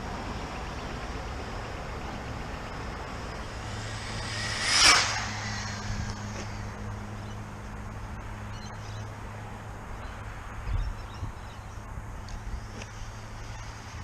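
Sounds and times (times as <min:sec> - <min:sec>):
rc car motor whine: 0:02.1 - 0:07.4.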